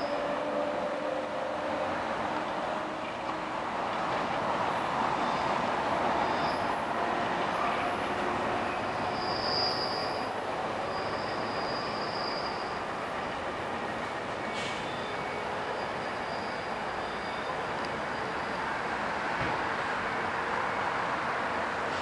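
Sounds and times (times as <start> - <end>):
high-pitched wheel squeal: 0.0 - 1.4, 5.2 - 6.9, 7.6 - 13.4, 14.5 - 18.8
train wheels rumbling on rail: 0.0 - 22.0.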